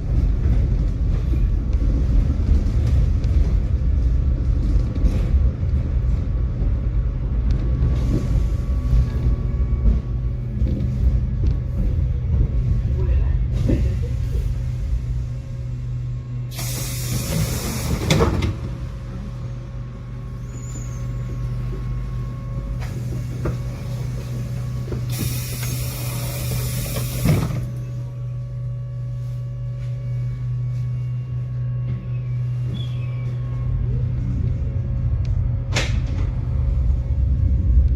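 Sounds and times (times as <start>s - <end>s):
tram electrical hum: 0.0s - 37.9s
compressed air hissing: 16.5s - 18.1s, 25.1s - 27.4s.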